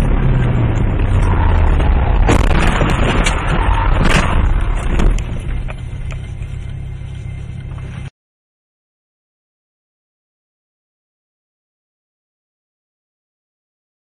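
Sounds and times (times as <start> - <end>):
car engine and road rumble: 0.0 - 8.1.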